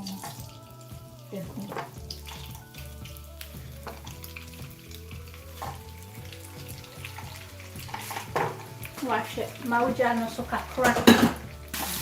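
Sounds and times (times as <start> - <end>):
food sizzling in hot oil: 0.0 - 12.0
soft background music: 0.0 - 12.0
stirring scrapes and knocks: 6.9 - 9.1.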